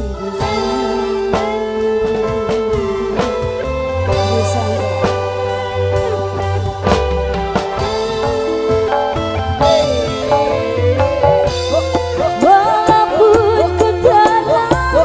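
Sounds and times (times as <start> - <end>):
bass line: 0.0 - 15.0
drum kit: 0.0 - 15.0
electric guitar melody: 0.0 - 15.0.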